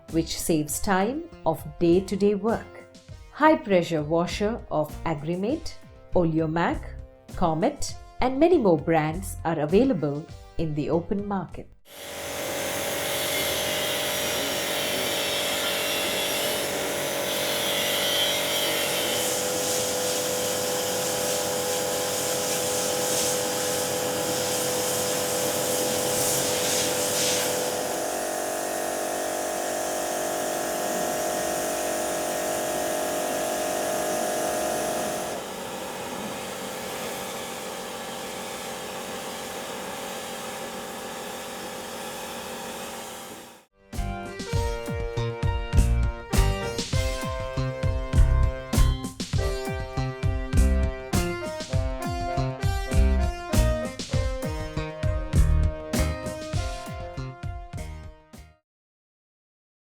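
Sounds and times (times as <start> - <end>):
pressure washer motor whine: 11.9 - 43.7, 45.7 - 51.9
water jet hissing: 11.9 - 43.7.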